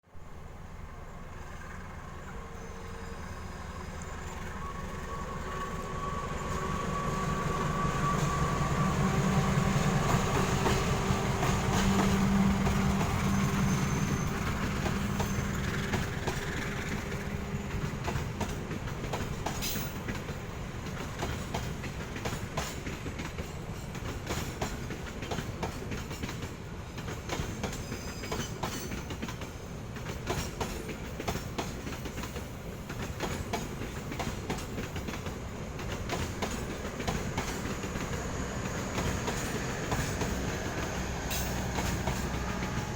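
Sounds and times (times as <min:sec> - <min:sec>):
locomotive engine rumble: 0:00.2 - 0:22.2, 0:32.6 - 0:42.9
train wheels clickety-clack: 0:00.9 - 0:42.9.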